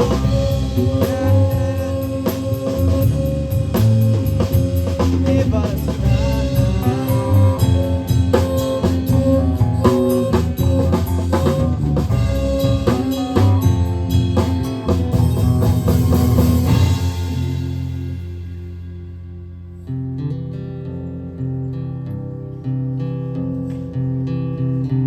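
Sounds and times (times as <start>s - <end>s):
drum rimshots: 0.0s - 18.8s
rock band playing: 0.0s - 19.2s.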